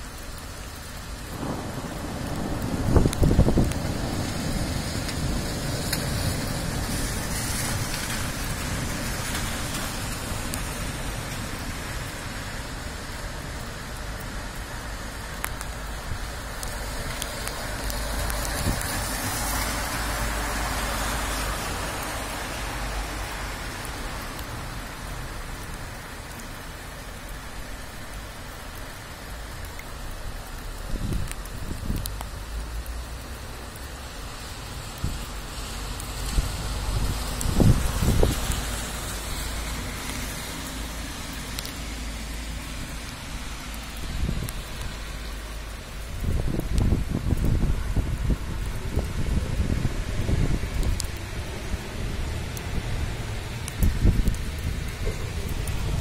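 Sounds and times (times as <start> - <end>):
heavy rain hissing: 0.0 - 56.0
low thunder rumble: 1.2 - 9.6.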